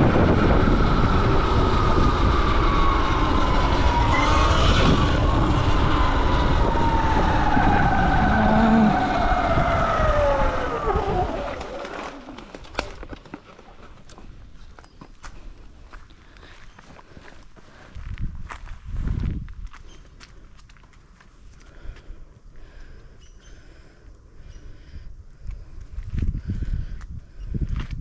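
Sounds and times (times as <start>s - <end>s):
wind noise on microphone: 0.0s - 13.2s, 17.8s - 20.0s, 24.5s - 28.0s
electric motorbike motor whining: 0.0s - 14.3s.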